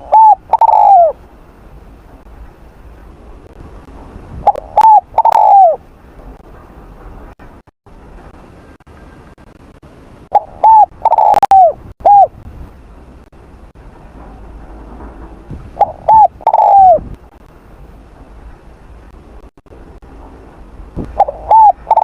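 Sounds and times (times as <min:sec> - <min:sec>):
dove cooing: 0:00.0 - 0:01.2, 0:04.4 - 0:05.8, 0:10.3 - 0:12.4, 0:15.8 - 0:17.1, 0:21.2 - 0:22.0.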